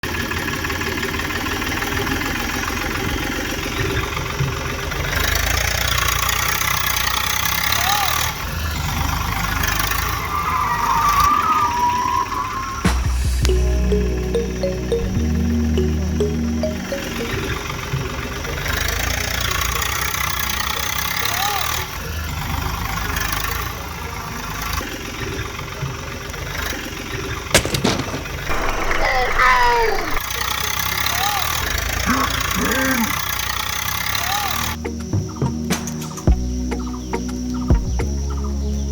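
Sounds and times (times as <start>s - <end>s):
small motor rattling: 0.3s - 10.1s, 18.5s - 25.7s, 30.2s - 34.8s.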